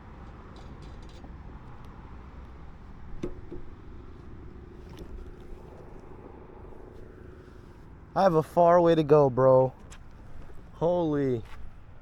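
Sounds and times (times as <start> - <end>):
vehicle rumble: 0.0 - 12.0
steady hum: 2.4 - 9.4.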